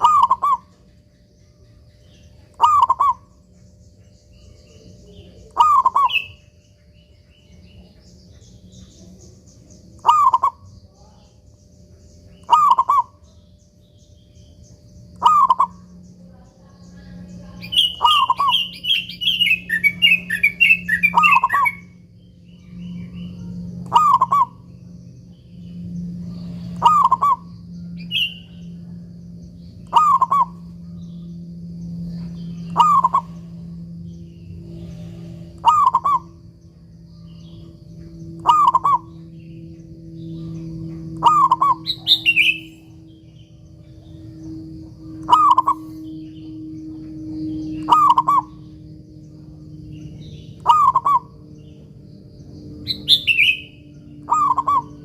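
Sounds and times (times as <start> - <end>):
dove cooing: 0.0 - 0.8, 2.5 - 3.4, 5.2 - 6.4, 10.0 - 10.7, 12.3 - 13.2, 15.1 - 15.9, 17.0 - 21.8, 23.4 - 24.7, 26.2 - 28.9, 29.8 - 31.0, 32.6 - 33.8, 35.2 - 36.4, 38.4 - 39.3, 40.4 - 42.8, 44.1 - 48.8, 50.6 - 51.7, 53.1 - 55.0
small bird chirping rapidly: 0.0 - 55.0
steady low hum: 0.0 - 55.0.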